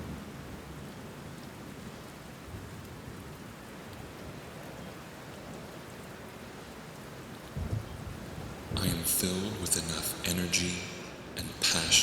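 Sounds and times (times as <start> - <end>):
steady rainfall: 0.0 - 12.0.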